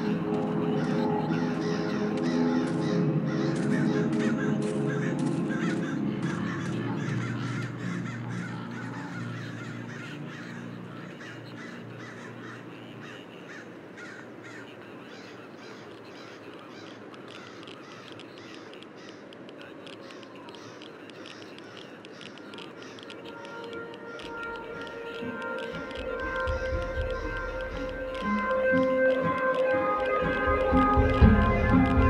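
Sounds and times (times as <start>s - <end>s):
low droning music: 0.0s - 13.9s, 22.8s - 32.0s
harsh bird calls: 0.0s - 32.0s.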